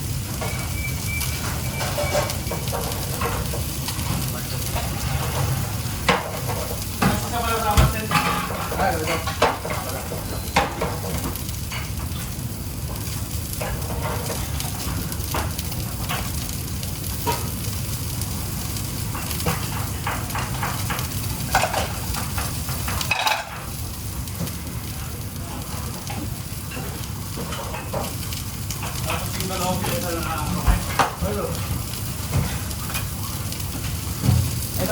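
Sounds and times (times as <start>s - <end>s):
food sizzling in hot oil: 0.0s - 34.9s
kitchen utensils clinking: 0.3s - 12.3s, 19.2s - 23.7s.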